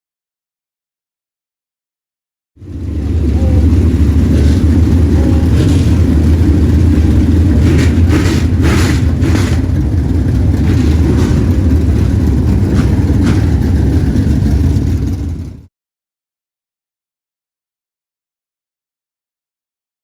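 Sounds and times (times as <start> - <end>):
race car engines running loud: 2.6 - 15.7.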